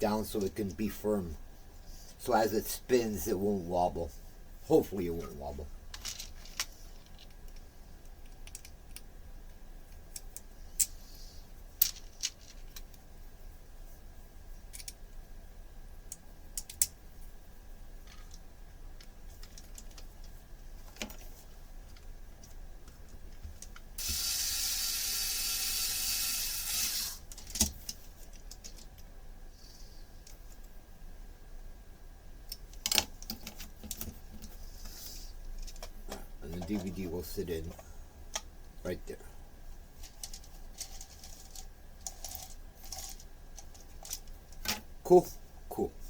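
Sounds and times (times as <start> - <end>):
plastic parts clicking and tapping: 5.9 - 9.1, 16.1 - 16.9, 19.0 - 23.9, 27.3 - 29.1, 32.5 - 34.5, 40.0 - 44.8.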